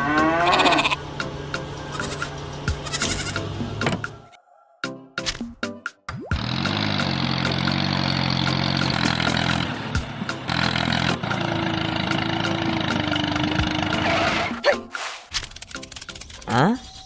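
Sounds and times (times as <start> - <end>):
engine running steadily: 0.0 - 4.3, 6.4 - 14.6.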